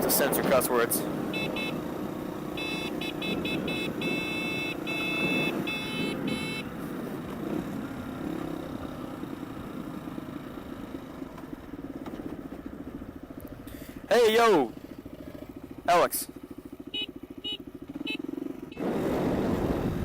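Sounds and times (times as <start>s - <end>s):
motorcycle engine running: 0.0s - 20.0s
short high beeps: 2.6s - 6.7s
rushing wind: 18.8s - 20.0s.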